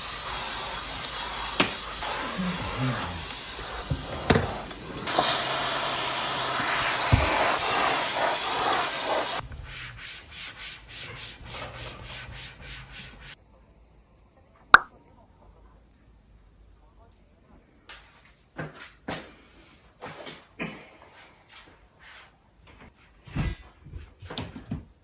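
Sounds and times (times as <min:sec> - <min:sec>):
brush scrubbing a surface: 0:00.0 - 0:13.4.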